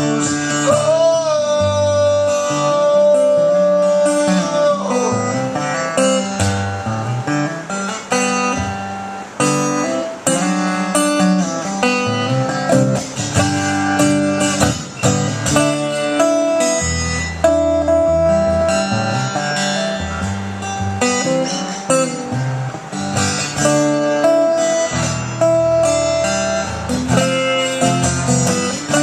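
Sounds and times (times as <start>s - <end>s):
plucked guitar lead: 0.0s - 29.0s
bass line: 12.1s - 21.5s.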